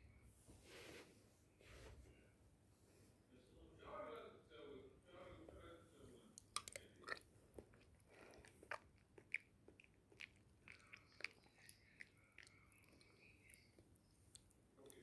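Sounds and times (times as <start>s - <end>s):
mouth and utensil clicks: 6.4s - 7.2s
chewing and crunching: 6.4s - 15.0s.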